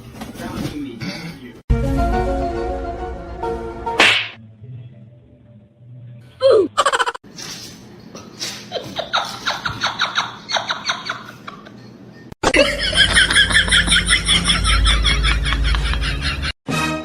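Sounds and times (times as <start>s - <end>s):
music: 0.0s - 6.6s, 13.6s - 17.0s
person laughing: 6.4s - 7.2s, 12.4s - 16.6s.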